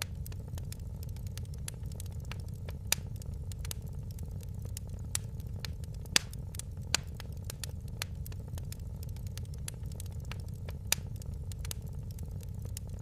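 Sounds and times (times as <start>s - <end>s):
fireplace fire crackling: 0.0s - 13.0s
low rumble: 0.0s - 13.0s.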